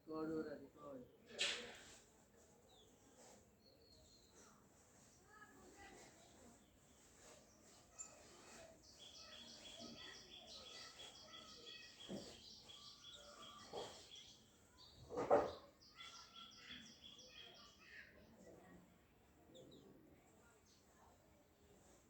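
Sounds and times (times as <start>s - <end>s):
small birds chirping: 1.7s - 22.0s.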